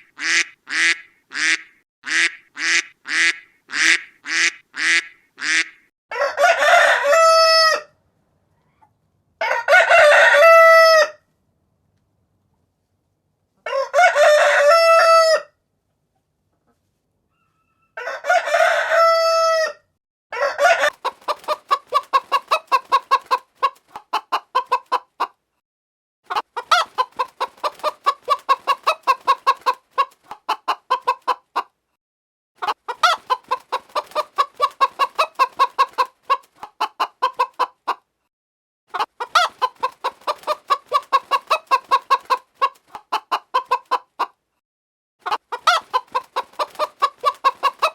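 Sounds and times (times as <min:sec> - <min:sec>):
chicken clucking: 0:00.0 - 0:11.2, 0:13.5 - 0:25.4, 0:26.3 - 0:31.8, 0:32.6 - 0:38.2, 0:38.9 - 0:44.5, 0:45.2 - 0:47.9
rooster crowing: 0:06.1 - 0:07.9, 0:09.4 - 0:11.2, 0:13.6 - 0:15.5, 0:17.3 - 0:20.9.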